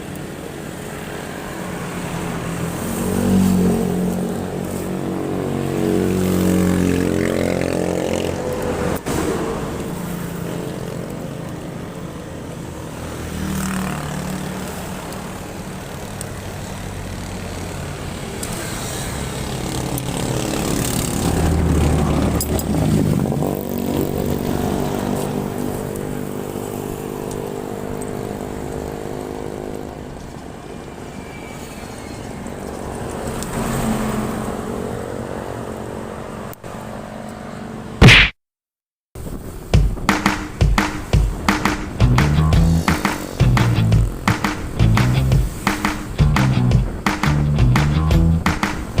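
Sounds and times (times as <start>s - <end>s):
road and wind noise: 0.0s - 38.0s, 39.2s - 49.0s
motorcycle engine revving: 2.8s - 8.7s, 42.0s - 45.6s.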